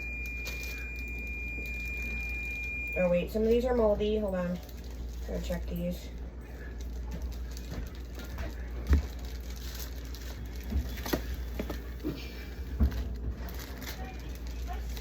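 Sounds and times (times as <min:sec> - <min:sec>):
berries clicking and rustling: 0:04.5 - 0:12.2.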